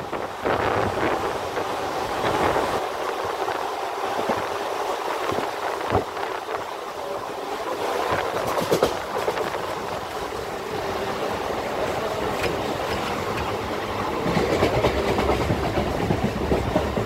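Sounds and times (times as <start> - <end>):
train wheels and air rushing: 0.0 - 17.0
wheels clacking: 8.0 - 10.4, 11.8 - 17.0.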